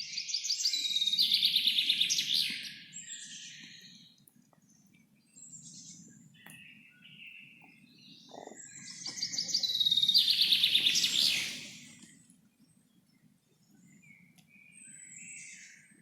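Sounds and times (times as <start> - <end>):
songbird trilling: 8.1 - 12.0.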